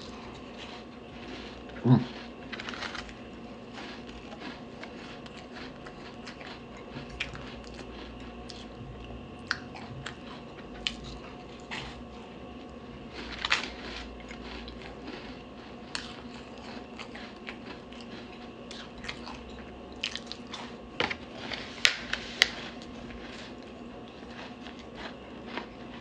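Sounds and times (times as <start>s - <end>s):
crunchy cookie bites: 0.0s - 26.0s
faint steady hum: 0.0s - 26.0s.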